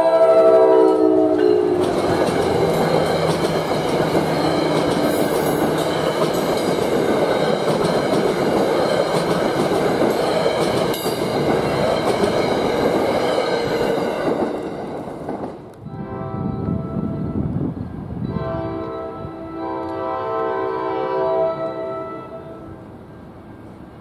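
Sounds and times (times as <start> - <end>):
train wheels rushing on rails: 0.0 - 18.3.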